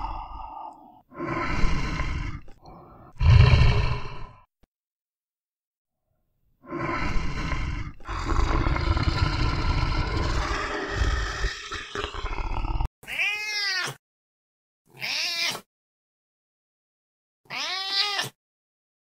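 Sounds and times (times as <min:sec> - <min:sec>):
big cat growling and roaring: 0:00.0 - 0:04.4, 0:06.7 - 0:12.9.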